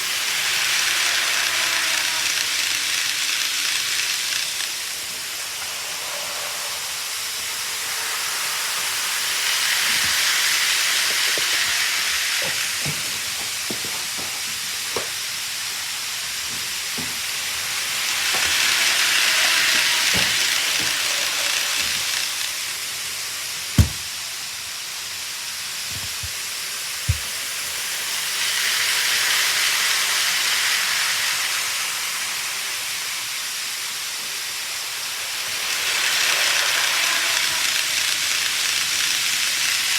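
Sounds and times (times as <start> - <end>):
model train hissing whirr: 0.0 - 39.9
wheels clicking over track joints: 16.5 - 22.5.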